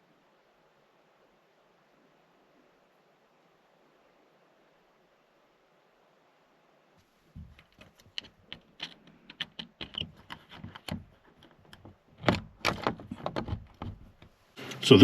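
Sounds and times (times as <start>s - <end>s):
hard objects clicking and knocking: 7.4s - 14.3s.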